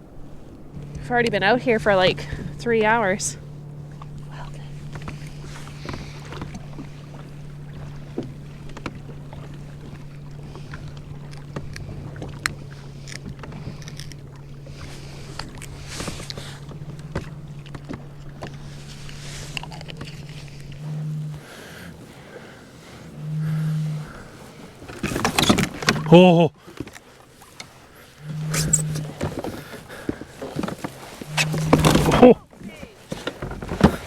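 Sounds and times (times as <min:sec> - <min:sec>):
steady low hum: 0:00.0 - 0:34.0
water lapping: 0:00.0 - 0:34.0
knocks against the hull: 0:03.9 - 0:18.8, 0:23.4 - 0:27.0, 0:28.3 - 0:34.0.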